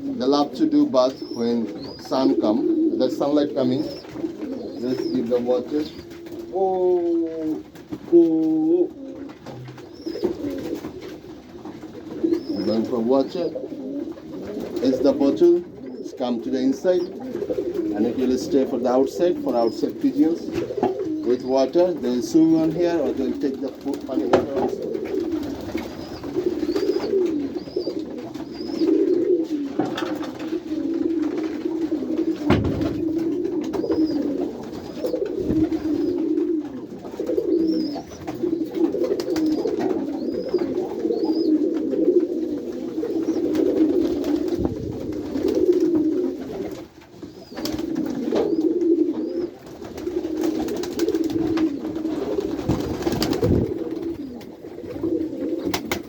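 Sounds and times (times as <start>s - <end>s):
pigeons cooing: 0.0s - 56.0s
knocks: 32.4s - 33.2s.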